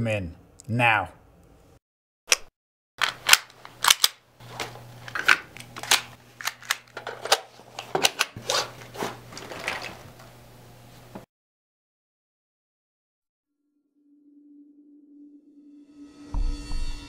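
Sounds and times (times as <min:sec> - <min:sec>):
metallic clicks of guns loading: 0:03.0 - 0:04.2, 0:05.1 - 0:07.4.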